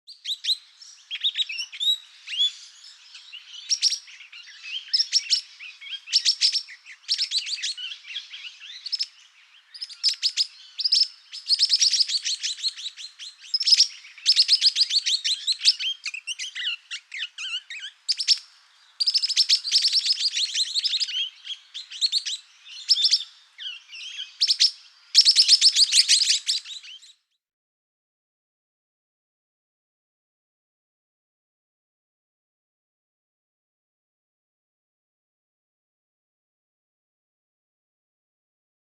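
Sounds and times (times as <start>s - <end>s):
birds chattering: 0.3s - 27.1s.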